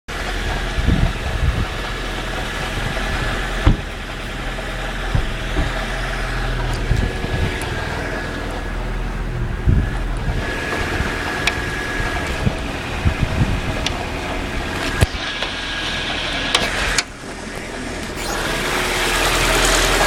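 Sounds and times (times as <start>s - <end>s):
car engine idling: 0.1s - 20.0s
short engine thuds: 0.2s - 15.6s.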